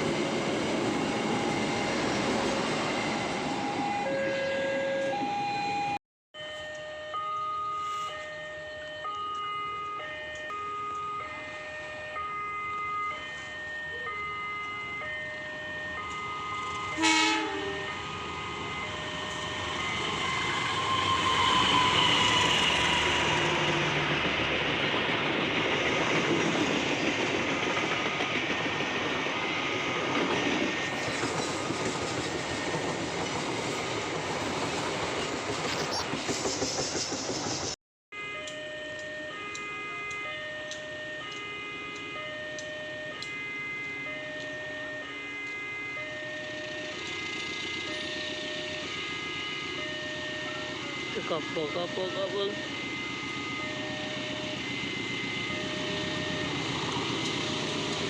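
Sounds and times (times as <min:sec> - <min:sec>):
train passing with wheel clatter: 0:00.0 - 0:06.0, 0:06.7 - 0:37.8, 0:38.4 - 0:58.0
level crossing alarm: 0:00.8 - 0:23.5, 0:38.1 - 0:58.0
train horn: 0:16.9 - 0:18.1.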